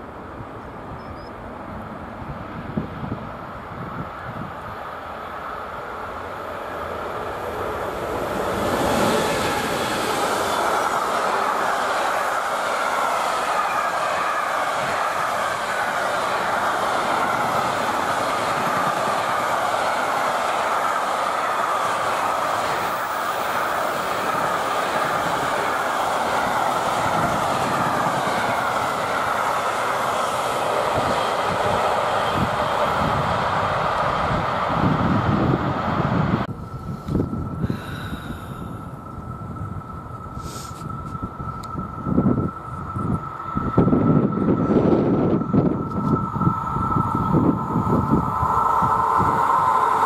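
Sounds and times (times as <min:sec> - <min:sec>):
train passing on rails: 0:00.0 - 0:50.0.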